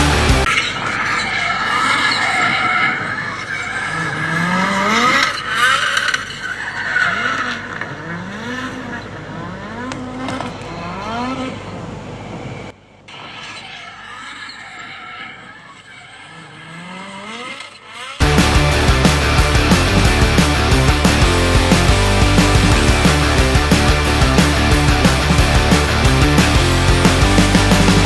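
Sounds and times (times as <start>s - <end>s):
car engine revving: 0.0s - 0.5s, 3.0s - 11.9s, 16.3s - 28.0s
rock music: 0.0s - 0.5s, 18.2s - 28.0s.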